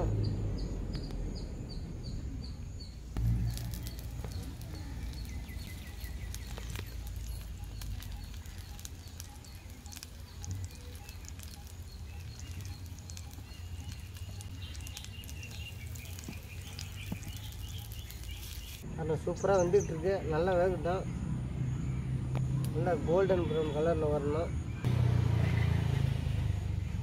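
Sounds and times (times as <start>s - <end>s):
birds chirping: 0.0s - 27.0s
ghee sizzling and crackling: 3.2s - 18.9s.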